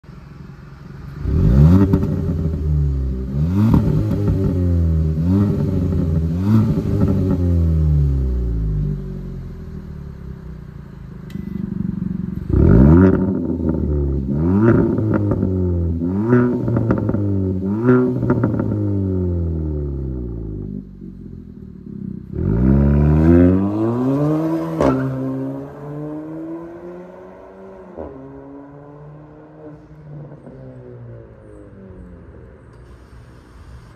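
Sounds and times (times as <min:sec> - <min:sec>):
car engine idling: 0:00.0 - 0:22.8
car engine revving: 0:00.4 - 0:33.0.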